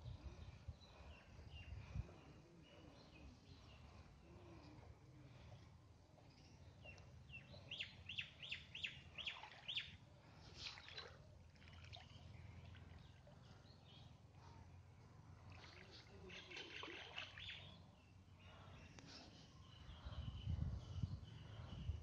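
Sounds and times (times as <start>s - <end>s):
bird chirping and calling: 6.8s - 10.0s, 15.6s - 19.0s.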